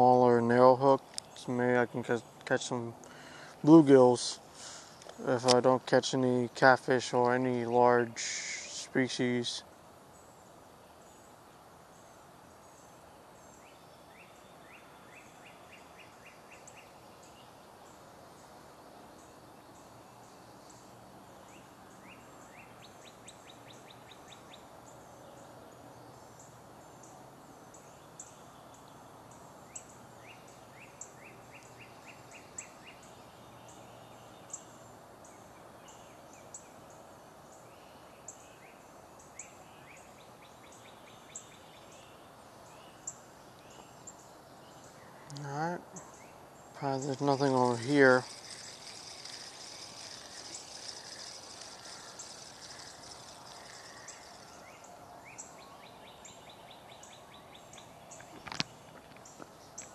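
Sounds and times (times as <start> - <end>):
songbird trilling: 44.8 - 59.9
sharp high bird chips: 46.8 - 55.5.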